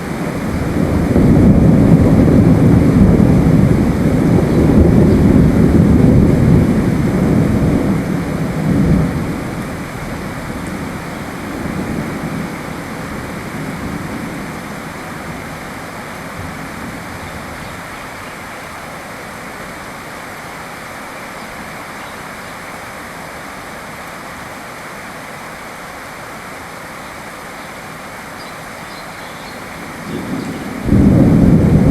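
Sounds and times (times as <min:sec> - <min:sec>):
thunder rolling: 0:00.0 - 0:15.6, 0:29.8 - 0:31.9
steady rain: 0:00.0 - 0:31.9.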